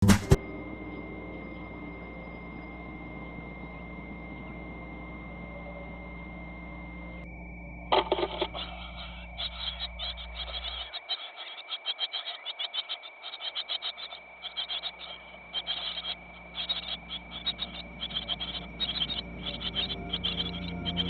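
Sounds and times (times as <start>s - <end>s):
steady high-pitched tone: 0.4s - 21.0s
rapidly pulsing animal calls: 7.9s - 21.0s.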